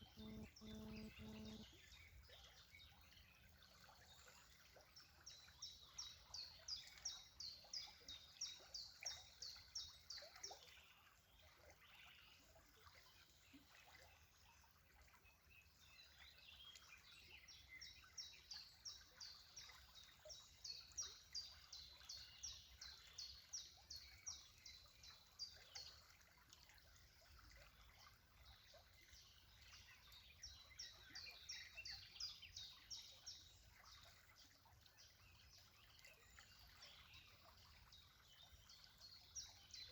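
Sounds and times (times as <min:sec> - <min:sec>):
low background hiss: 0:00.0 - 0:01.8
songbird singing high notes: 0:00.0 - 0:01.8.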